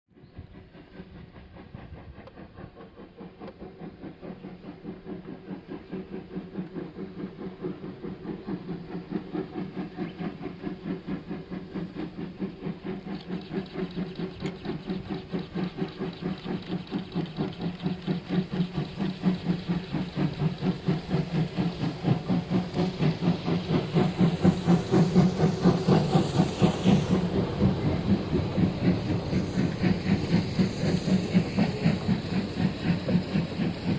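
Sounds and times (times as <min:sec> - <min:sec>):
steam locomotive chuffing: 0:00.2 - 0:33.9.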